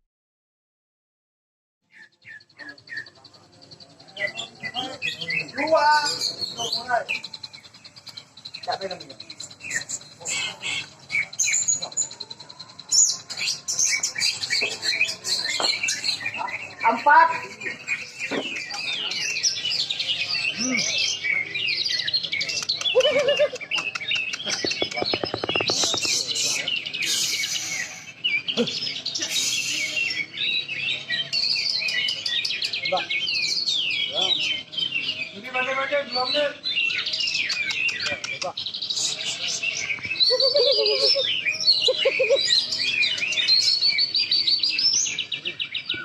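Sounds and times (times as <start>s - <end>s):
bird singing chirps and whistles: 1.8s - 46.0s.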